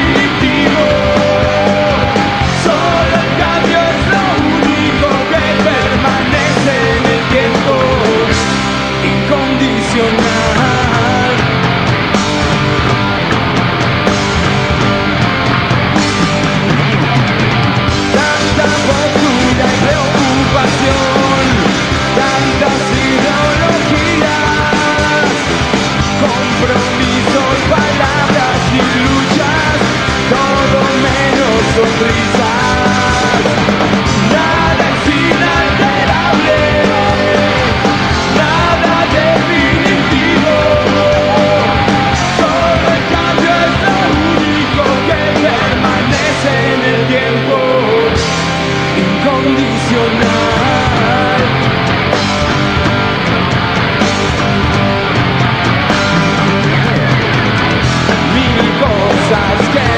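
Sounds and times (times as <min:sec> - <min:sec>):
punk rock band playing live: 0:00.0 - 0:59.9.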